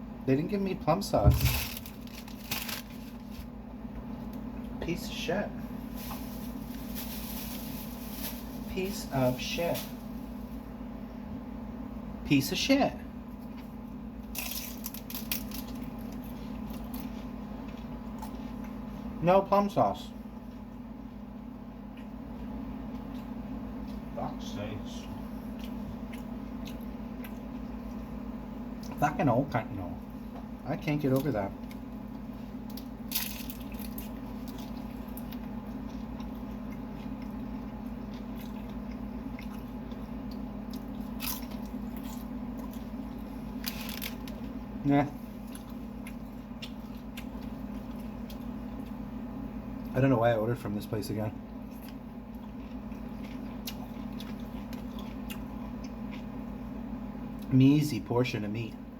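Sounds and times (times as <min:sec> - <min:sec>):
steady low hum: 0:00.0 - 0:58.9
chewing and eating: 0:13.3 - 0:19.2, 0:20.2 - 0:50.0, 0:51.4 - 0:57.5.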